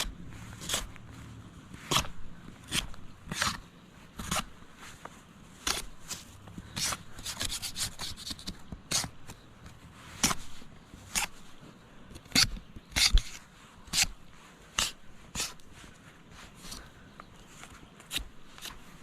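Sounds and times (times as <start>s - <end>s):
knife scraping bark off wood: 0.0s - 1.0s, 1.7s - 4.6s, 5.6s - 9.4s, 10.1s - 11.4s, 12.2s - 15.7s, 18.0s - 19.0s.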